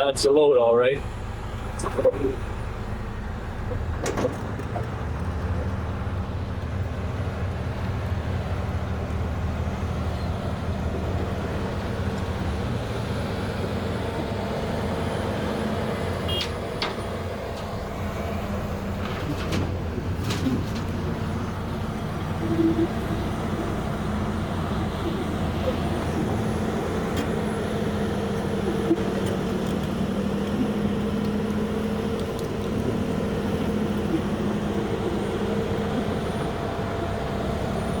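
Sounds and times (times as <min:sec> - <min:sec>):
diesel truck engine running: 0:00.0 - 0:38.0.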